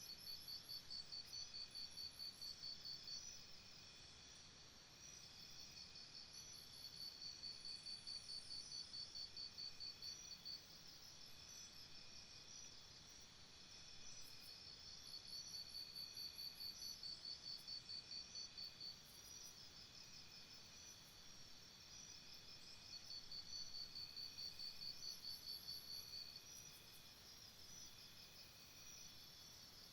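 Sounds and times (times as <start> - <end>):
insect chirping in rapid pulses: 14.2 - 29.9.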